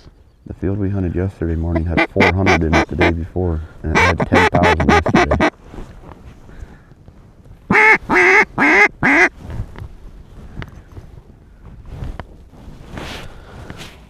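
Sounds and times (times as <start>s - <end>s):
duck call quacks: 1.6s - 5.5s, 7.7s - 9.3s.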